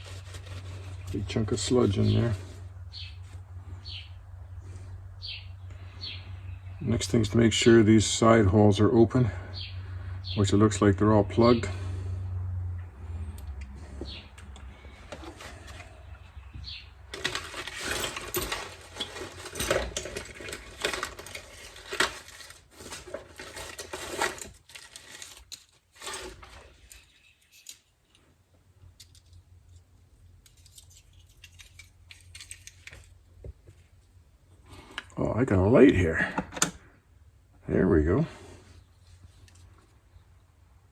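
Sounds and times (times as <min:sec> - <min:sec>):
small metal parts clinking: 0:17.1 - 0:28.2, 0:28.9 - 0:33.2.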